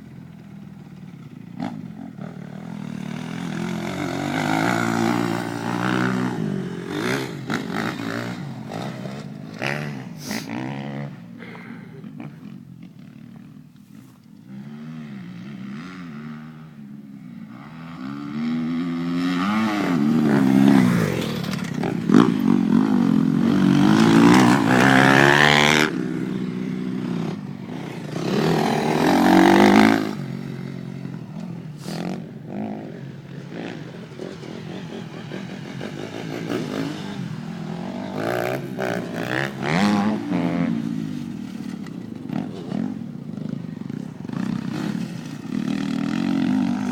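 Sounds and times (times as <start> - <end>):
motocross bike engine revving: 0.8 - 13.6, 17.5 - 46.9.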